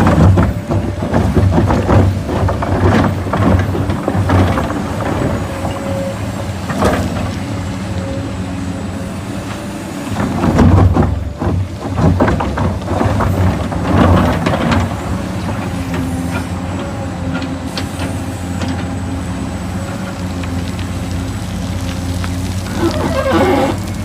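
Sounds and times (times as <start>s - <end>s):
knocks and clanks: 0.0s - 7.4s, 10.1s - 18.9s
heavy engine humming: 0.0s - 24.0s.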